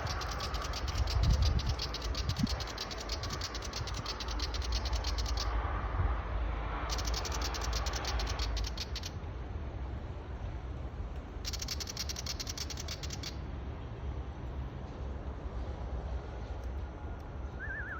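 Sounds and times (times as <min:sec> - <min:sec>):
bird scolding chatter: 0:00.0 - 0:05.5, 0:06.9 - 0:09.2, 0:11.4 - 0:13.4.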